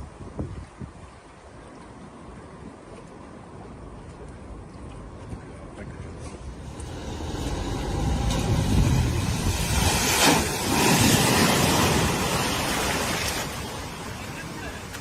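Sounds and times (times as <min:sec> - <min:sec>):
rush of pushed water: 0:00.0 - 0:15.0
vehicle engine noise: 0:06.2 - 0:12.9.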